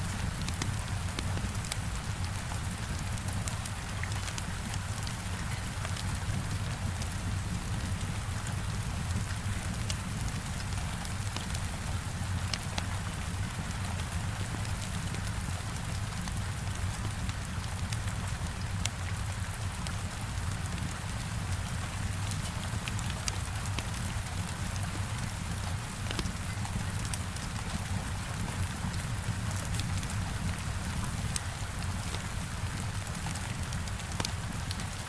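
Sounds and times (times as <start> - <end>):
heavy rain: 0.0 - 35.0
wood fire crackling: 0.2 - 1.9, 22.2 - 35.0.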